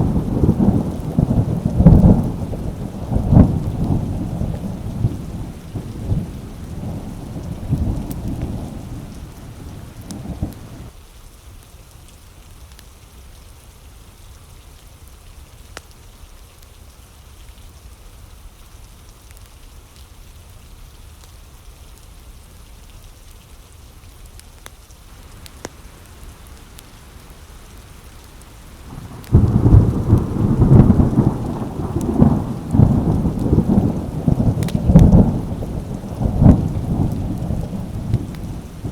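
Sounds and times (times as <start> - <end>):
thunder rumbling: 0.0 - 10.9, 25.2 - 38.9
steady rain falling: 0.0 - 38.9.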